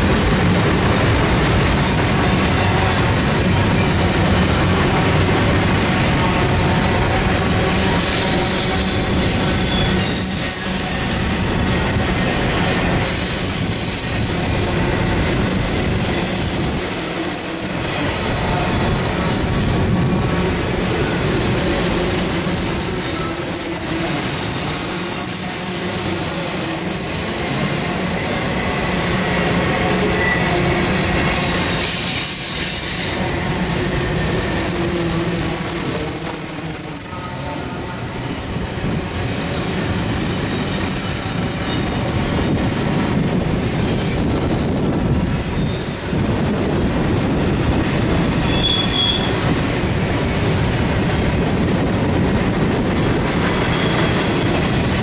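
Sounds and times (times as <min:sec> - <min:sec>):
train wheels rumbling on rails: 0:00.0 - 0:55.0
wheel squeals: 0:21.4 - 0:37.9, 0:39.7 - 0:42.9, 0:48.4 - 0:49.4, 0:53.6 - 0:54.5.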